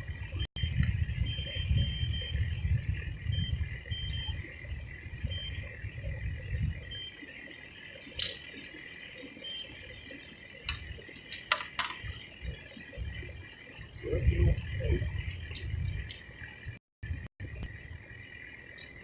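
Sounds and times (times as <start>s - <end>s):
chorus of chirping animals: 0.0s - 19.0s
sharp clicks: 8.0s - 8.4s, 10.6s - 12.1s
low rumble: 12.0s - 18.3s.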